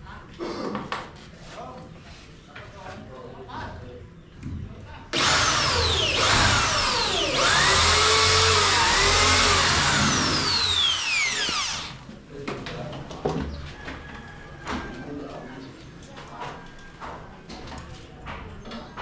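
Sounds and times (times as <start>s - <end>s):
electric drill running: 5.2s - 12.0s.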